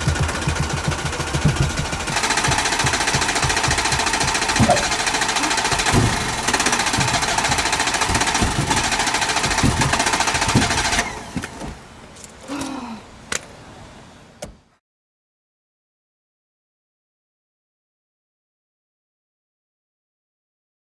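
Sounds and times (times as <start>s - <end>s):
starter motor cranking engine: 0.0s - 12.4s.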